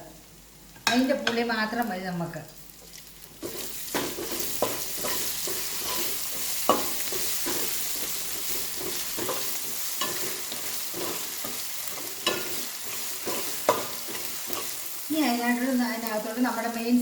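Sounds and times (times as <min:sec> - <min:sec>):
vegetables sizzling in oil: 0:00.0 - 0:17.0
spoon stirring and scraping: 0:02.8 - 0:14.9
spoon knocking against pan: 0:13.3 - 0:14.7.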